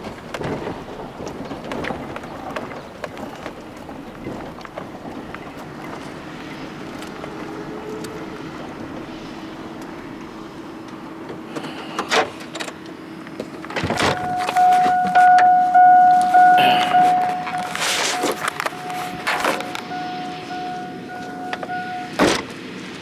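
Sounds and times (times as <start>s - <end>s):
engine humming: 0.0s - 23.0s
reversing alarm beeping: 13.9s - 22.4s.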